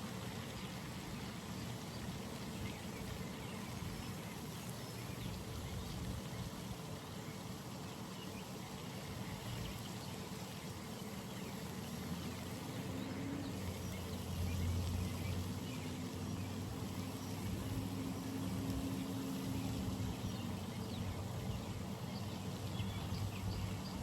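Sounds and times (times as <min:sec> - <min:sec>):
soft watery hiss: 0:00.0 - 0:24.0
low engine hum: 0:09.3 - 0:24.0.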